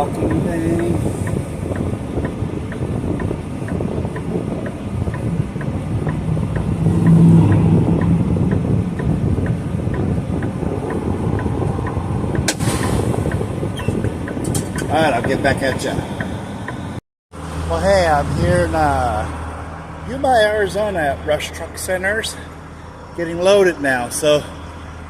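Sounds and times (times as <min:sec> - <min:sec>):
fast regular ticking: 0:00.0 - 0:12.5, 0:13.2 - 0:16.9
truck diesel engine running: 0:00.0 - 0:25.0.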